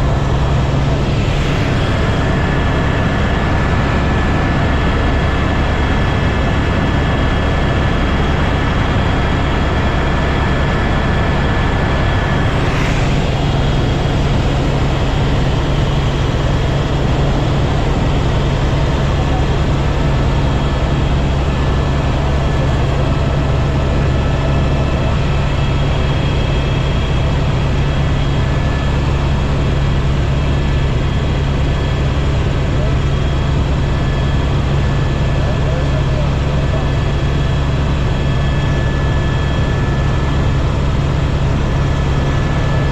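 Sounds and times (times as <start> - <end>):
thin constant whine: 0.0 - 29.1
helicopter rotor and engine drone: 0.0 - 42.9.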